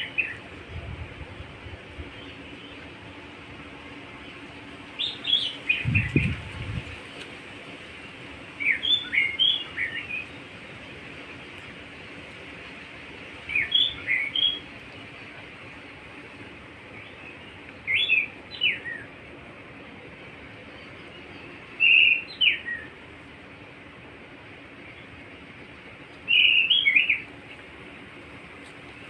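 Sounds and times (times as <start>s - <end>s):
steady background hiss: 0.0s - 29.0s
songbird whistling phrases: 8.6s - 10.3s, 13.5s - 14.6s, 17.9s - 19.1s, 21.8s - 22.9s, 26.3s - 27.2s.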